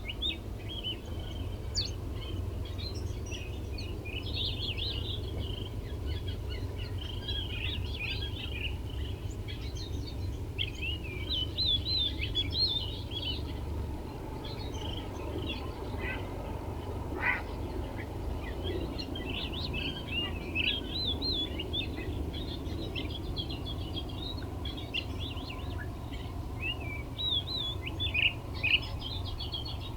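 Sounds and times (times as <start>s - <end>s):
low background rumble: 0.0s - 29.9s
songbirds chirping: 0.0s - 29.9s.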